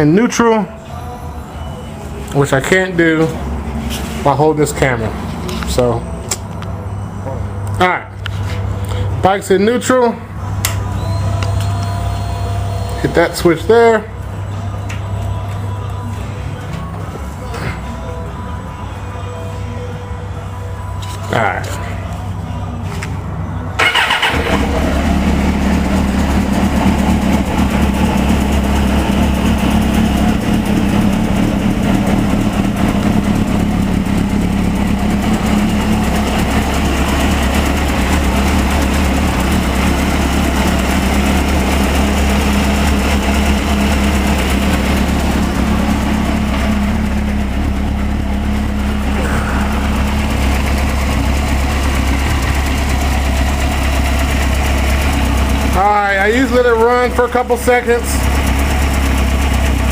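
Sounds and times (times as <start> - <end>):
motorcycle engine idling: 23.8 - 59.9.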